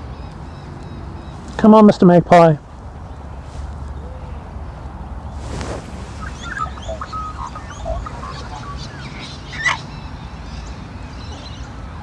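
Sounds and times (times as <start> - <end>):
birds chirping: 0.0 - 12.0
loud sharp bird call: 6.2 - 10.0.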